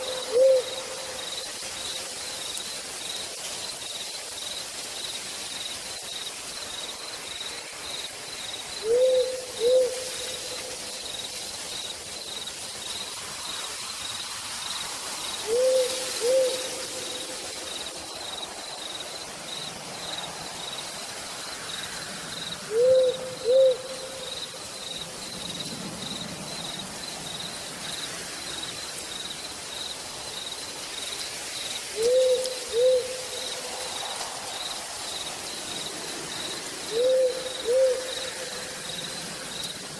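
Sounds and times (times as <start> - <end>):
owl hooting: 0.0 - 1.2, 8.8 - 10.3, 15.4 - 16.8, 22.7 - 24.3, 32.0 - 33.4, 36.9 - 38.5
crickets chirping: 0.0 - 39.9
rain hiss: 0.0 - 39.9.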